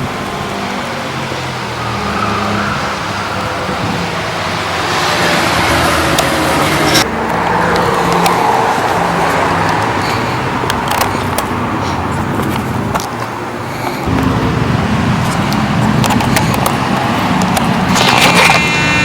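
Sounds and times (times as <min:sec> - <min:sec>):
car engine and road noise: 0:00.0 - 0:19.0
scattered clicks: 0:05.2 - 0:19.0.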